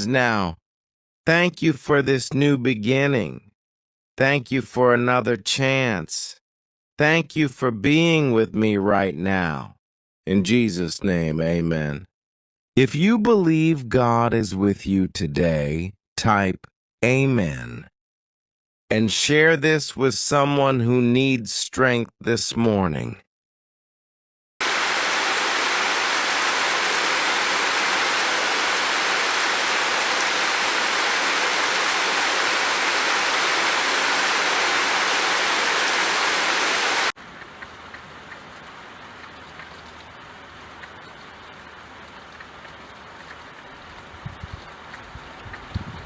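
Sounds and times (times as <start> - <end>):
heavy rain hiss: 24.6 - 45.2
light rain ticks: 37.2 - 46.0.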